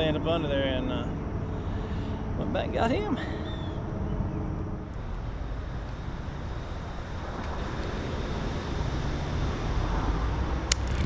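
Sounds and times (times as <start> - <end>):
wind buffeting microphone: 10.5 - 11.0.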